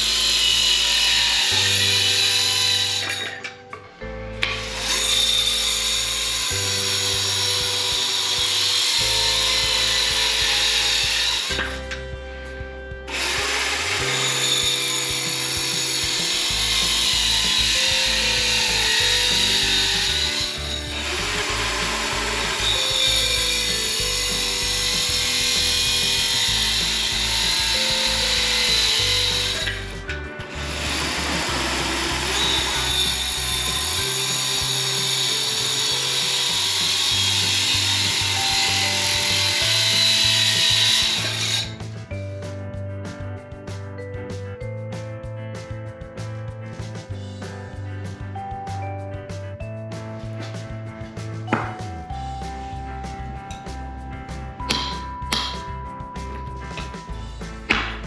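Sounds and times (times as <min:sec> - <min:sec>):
circular saw cutting wood: 0:00.0 - 0:42.0
background music with bass line: 0:00.0 - 0:58.0.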